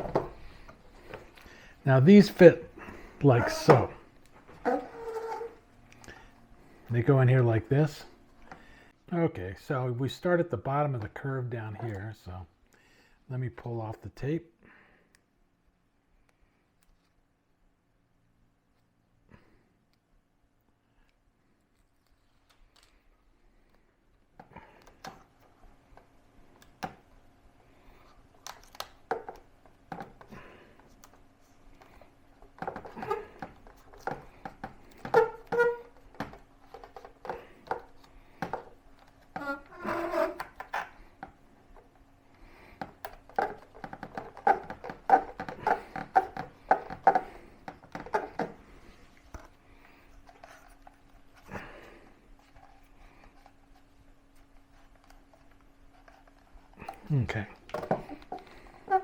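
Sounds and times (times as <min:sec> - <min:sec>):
tape peeling crackles and rustles: 0:21.5 - 0:23.3.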